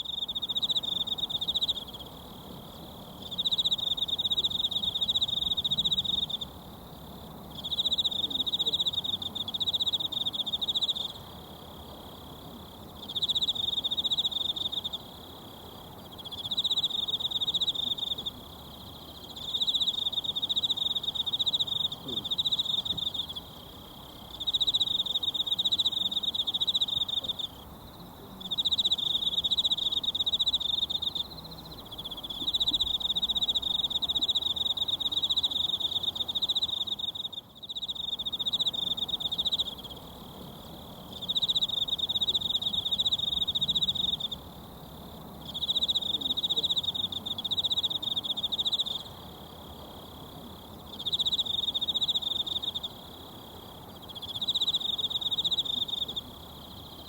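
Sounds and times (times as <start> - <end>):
insect trilling: 13.0 - 57.0.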